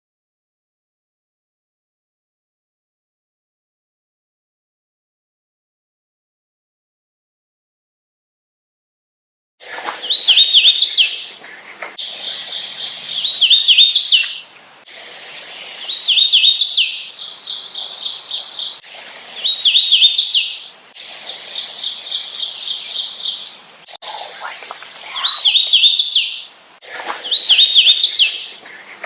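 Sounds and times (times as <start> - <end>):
warbler singing whistled song: 10.0 - 11.4, 12.0 - 14.5, 15.4 - 24.2, 25.0 - 28.9.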